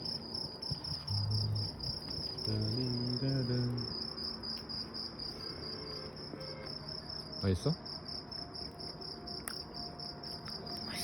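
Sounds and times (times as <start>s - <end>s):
crickets chirping: 0.0s - 11.0s
low voice humming: 1.1s - 1.8s.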